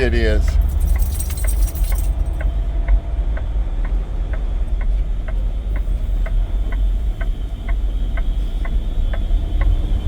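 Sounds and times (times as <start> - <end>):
truck engine rumble: 0.0 - 10.0
turn signal ticking: 0.0 - 10.0.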